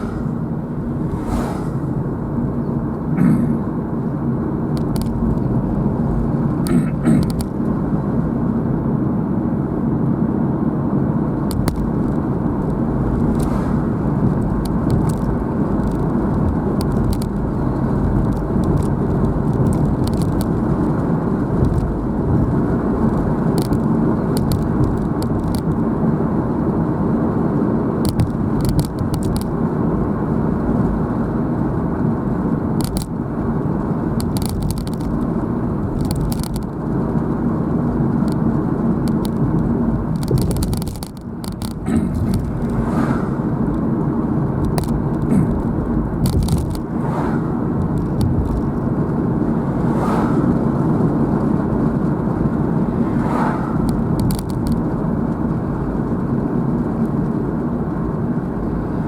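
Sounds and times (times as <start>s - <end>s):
car road and engine noise: 0.0s - 59.0s
light clicks and crackles: 4.7s - 7.8s, 11.5s - 13.6s, 14.2s - 25.8s, 28.0s - 29.6s, 32.8s - 37.4s, 38.1s - 43.0s, 44.6s - 46.9s, 47.8s - 48.8s, 53.2s - 56.0s.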